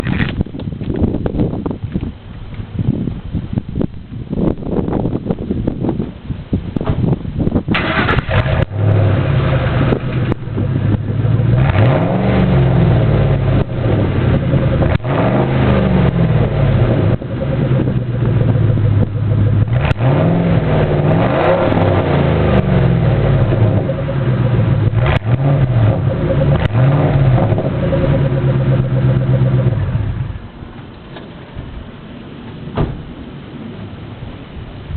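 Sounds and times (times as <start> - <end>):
loud engine idling and revving: 7.7 - 30.8.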